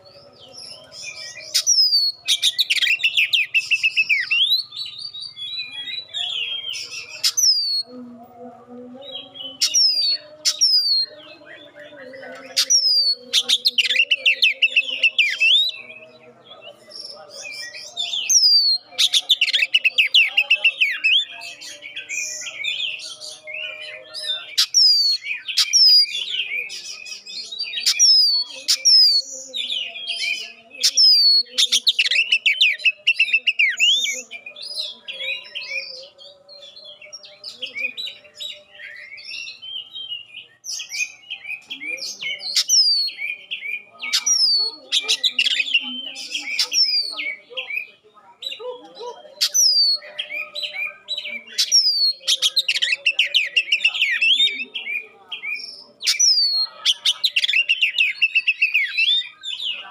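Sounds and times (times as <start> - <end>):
songbird warbling and whistling: 0.0 - 7.9, 9.2 - 16.1, 16.9 - 47.9, 48.5 - 59.9.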